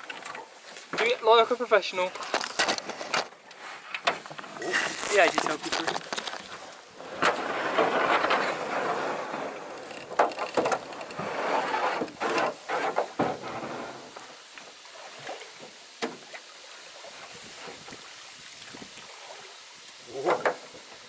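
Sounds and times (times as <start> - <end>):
water sloshing: 0.0 - 21.0
knocks against canoe hull: 20.2 - 20.6.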